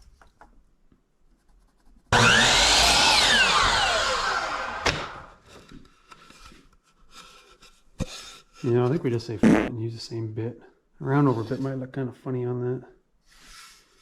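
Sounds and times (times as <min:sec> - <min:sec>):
power tool motor whine: 0:02.2 - 0:05.4.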